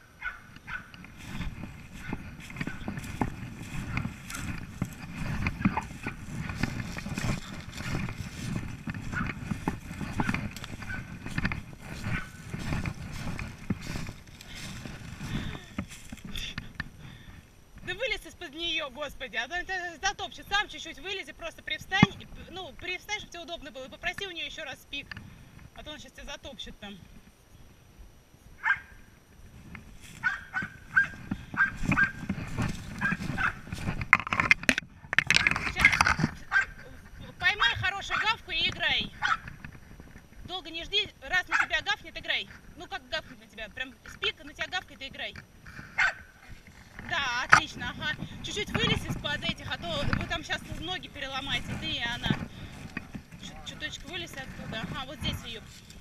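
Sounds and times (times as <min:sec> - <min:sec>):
scuffling: 0:00.0 - 0:18.2, 0:29.4 - 0:43.6, 0:44.2 - 0:56.0
rustling and clicks: 0:00.5 - 0:17.0, 0:29.6 - 0:40.6, 0:44.6 - 0:56.0
dog trampling in leaves: 0:00.7 - 0:16.3, 0:29.9 - 0:34.4.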